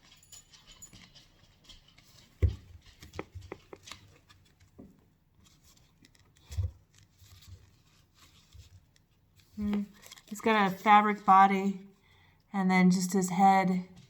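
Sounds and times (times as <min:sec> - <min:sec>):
small clicks and rustles of handling: 0:00.0 - 0:10.5.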